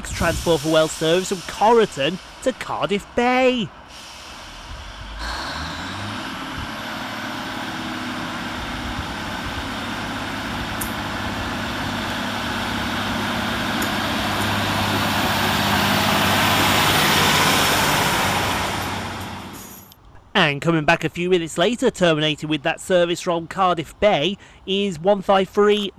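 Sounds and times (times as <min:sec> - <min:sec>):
diesel train engine revving: 0:00.0 - 0:19.9
rail noise: 0:00.0 - 0:20.3.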